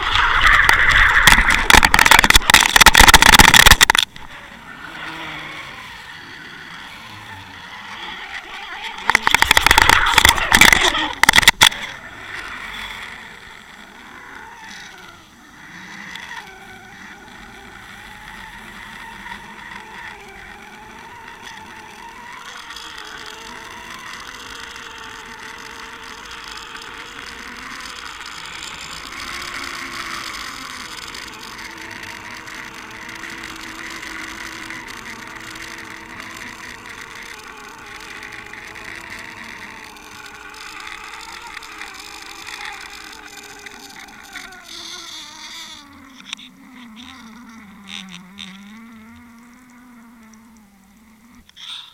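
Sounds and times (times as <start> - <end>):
underwater rush of water: 0.0 - 5.6
faint boat motor hum: 0.0 - 51.9.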